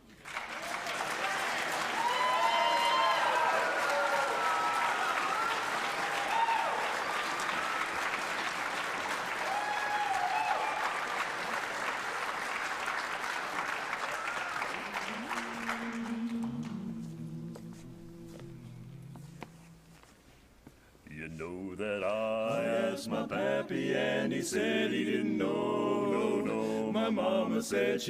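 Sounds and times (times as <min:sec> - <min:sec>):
audience applauding: 0:00.0 - 0:17.2.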